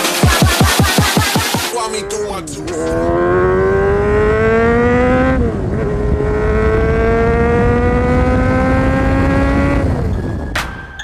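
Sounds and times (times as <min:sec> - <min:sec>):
loud motorcycle engine accelerating: 0:00.4 - 0:10.5.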